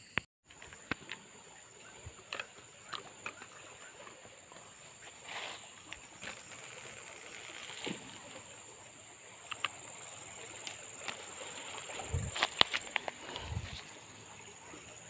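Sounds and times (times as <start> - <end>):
small clicks: 9.4 - 9.8.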